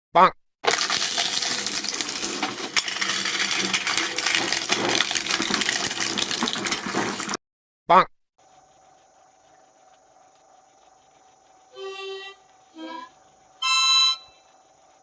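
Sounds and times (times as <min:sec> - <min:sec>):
dense clattering and crackling: 0:00.6 - 0:07.4.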